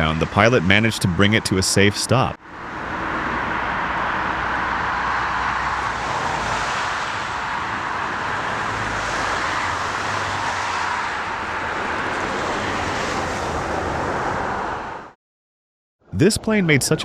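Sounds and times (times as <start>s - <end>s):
jet engines rushing: 2.6s - 15.2s.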